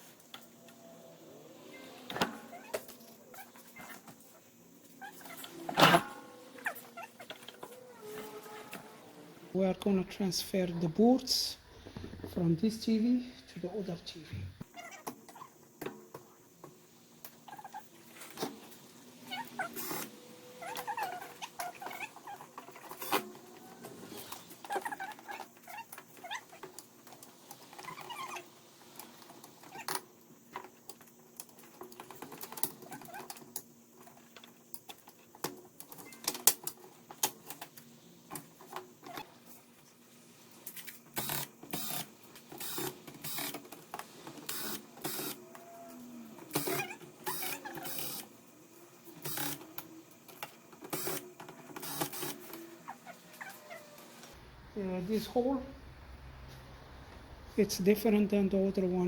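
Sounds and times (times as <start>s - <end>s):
tools and screws clicking: 40.7s - 45.4s, 49.2s - 52.7s.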